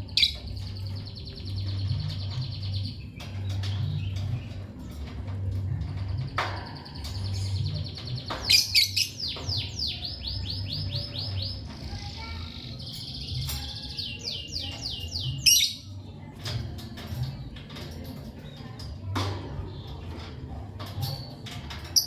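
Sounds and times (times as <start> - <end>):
lovebirds chirping: 0.0 - 16.3.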